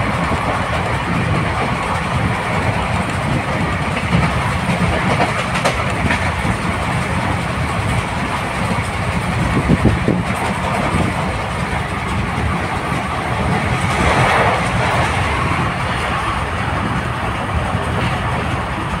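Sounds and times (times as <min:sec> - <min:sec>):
train wheels rumbling on track: 0:00.0 - 0:19.0
rush of passing air: 0:11.4 - 0:17.8.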